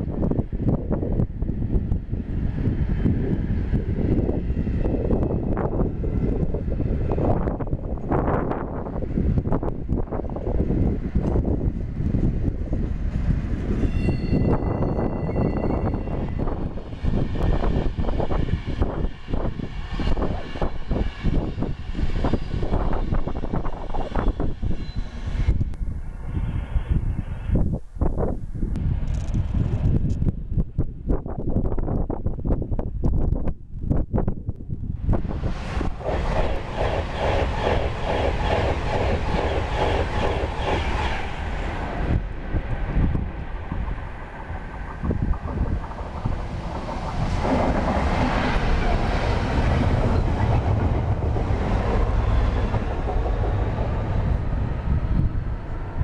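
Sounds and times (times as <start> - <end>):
train passing rumble: 0.0 - 56.0
wind buffeting microphone: 0.0 - 56.0
scattered clicks: 28.7 - 30.2
train wheels clattering: 42.7 - 55.0.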